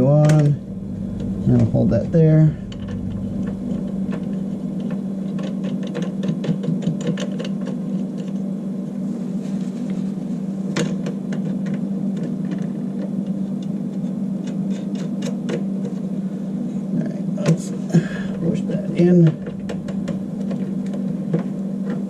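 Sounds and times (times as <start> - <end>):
steady low hum: 0.0 - 22.0
small metal clicks and taps: 4.8 - 8.4.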